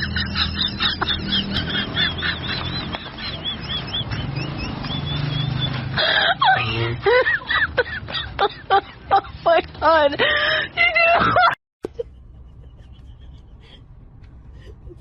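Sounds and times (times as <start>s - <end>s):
birds calling: 0.0s - 6.9s.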